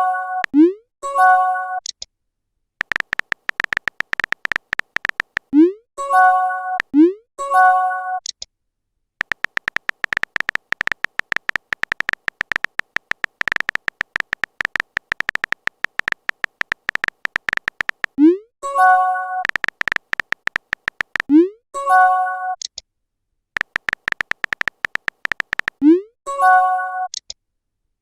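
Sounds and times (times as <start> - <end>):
clicky electronic typing beeps: 2.8 - 5.7, 9.2 - 18.4, 19.4 - 21.4, 23.6 - 26.0.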